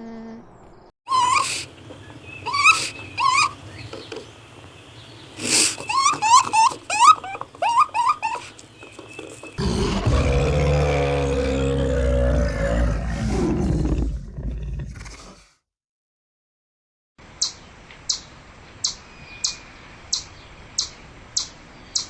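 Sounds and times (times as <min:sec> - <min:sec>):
animal calls sweeping up and down: 0:01.1 - 0:09.6
low drawn-out roar: 0:09.6 - 0:15.0.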